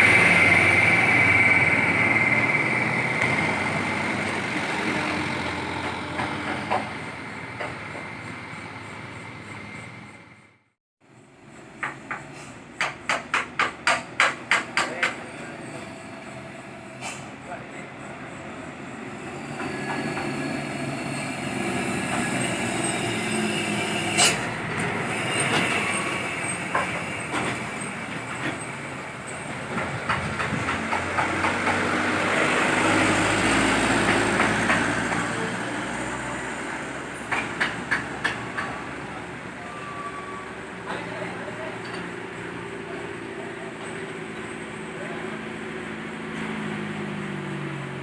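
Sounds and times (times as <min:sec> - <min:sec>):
heavy vehicle passing: 0:00.0 - 0:10.5, 0:29.6 - 0:39.5.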